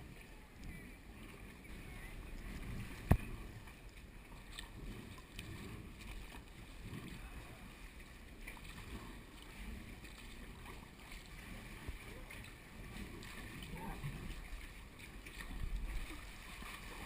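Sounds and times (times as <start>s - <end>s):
paddle strokes in water: 0.0s - 17.0s
water lapping at hull: 0.0s - 17.0s.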